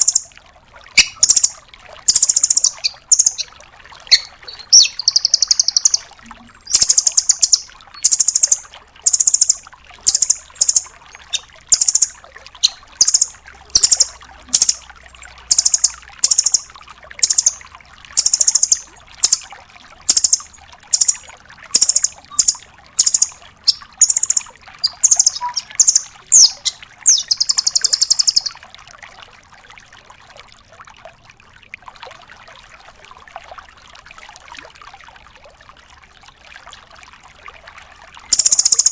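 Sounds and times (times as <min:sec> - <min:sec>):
bird fast trill: 0:00.0 - 0:00.3, 0:01.0 - 0:03.5, 0:04.1 - 0:14.8, 0:15.5 - 0:17.6, 0:18.2 - 0:19.4, 0:20.1 - 0:28.6, 0:38.3 - 0:38.9
bird giving sharp high calls: 0:01.0 - 0:03.5, 0:04.1 - 0:14.8, 0:15.5 - 0:17.6, 0:18.2 - 0:19.4, 0:20.1 - 0:28.6, 0:38.3 - 0:38.9.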